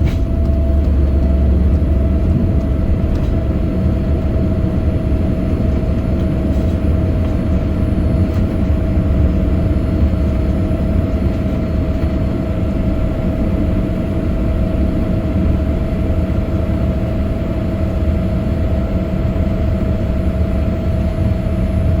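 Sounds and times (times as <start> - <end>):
jet airliner taking off: 0.0 - 16.6.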